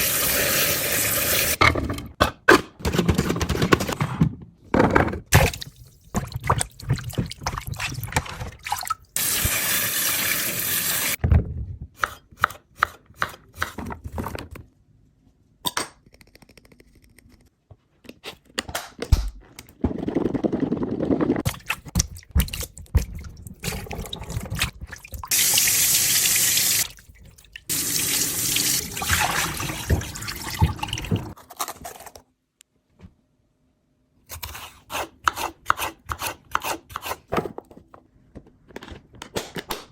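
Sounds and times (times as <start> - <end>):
kitchen tap running: 5.6 - 11.2, 21.6 - 27.0, 27.7 - 31.4
water splashing: 26.8 - 31.4.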